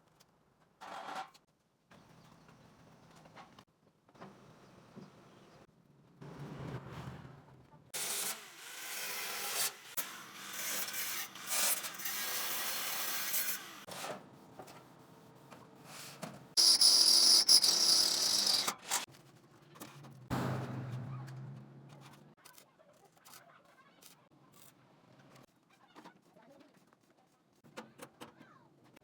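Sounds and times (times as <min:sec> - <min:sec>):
hand tool rasping metal: 0:08.0 - 0:13.9, 0:16.6 - 0:19.1.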